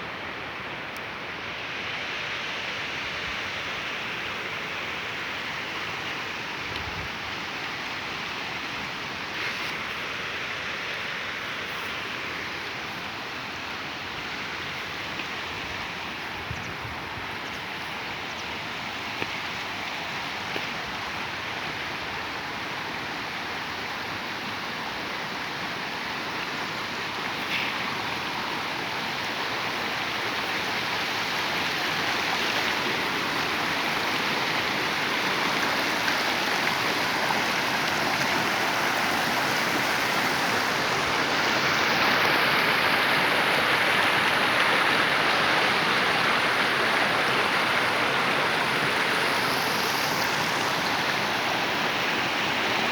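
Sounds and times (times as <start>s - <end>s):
waterfall rushing: 17.7s - 52.9s.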